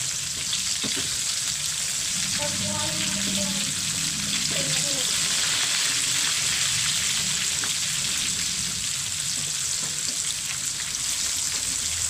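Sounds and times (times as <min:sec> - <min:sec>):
shrimp deep-frying in oil: 0:00.0 - 0:12.0.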